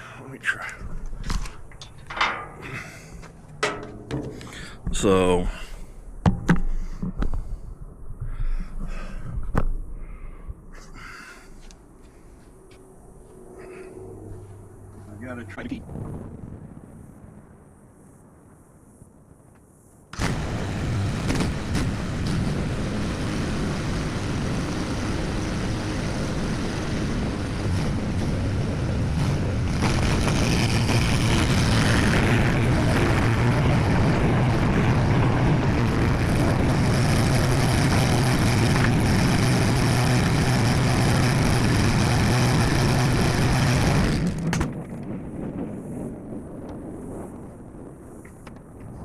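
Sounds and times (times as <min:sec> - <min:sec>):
skid steer loader engine running: 0:27.8 - 0:44.6.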